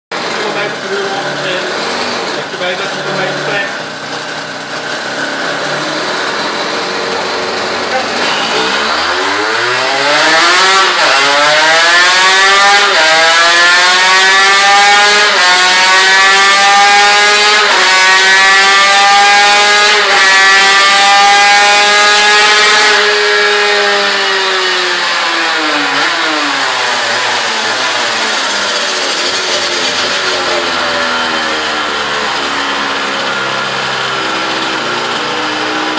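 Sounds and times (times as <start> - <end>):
dyno rollers slowing: 0.1 - 13.5, 22.4 - 35.9
two-stroke engine revving: 0.1 - 35.9.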